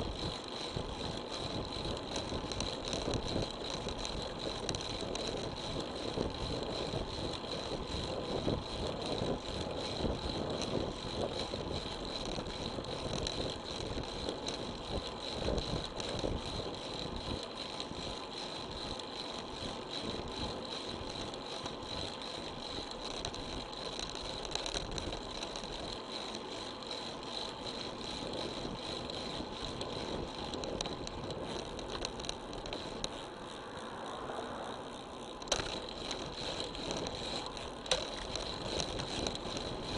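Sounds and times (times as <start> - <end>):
small rattles: 0.0 - 39.9
wind and road noise: 0.0 - 39.9
steady high whine: 27.2 - 39.9.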